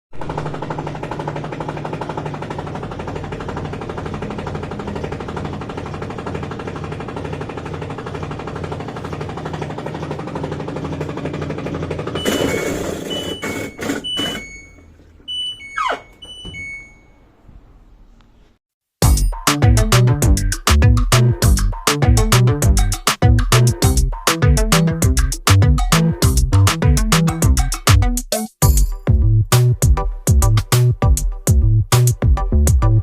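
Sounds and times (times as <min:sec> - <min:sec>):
washing machine rattling clatter: 0:00.1 - 0:14.7
short control panel beeps: 0:12.2 - 0:17.2.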